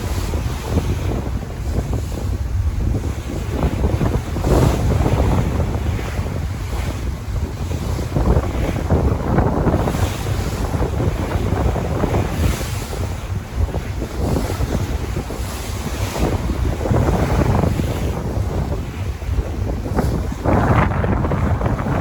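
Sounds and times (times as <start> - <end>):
sea waves breaking: 0.0 - 22.0
wind rumbling on microphone: 0.0 - 22.0.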